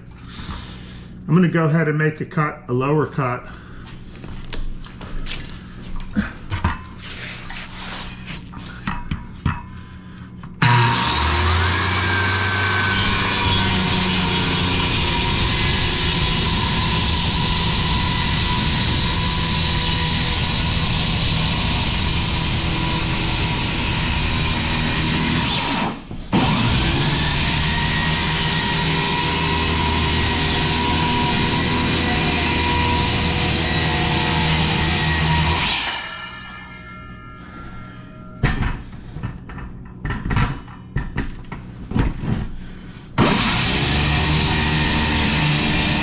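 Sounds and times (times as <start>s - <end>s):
circular saw cutting wood: 10.6s - 37.0s, 43.2s - 46.0s.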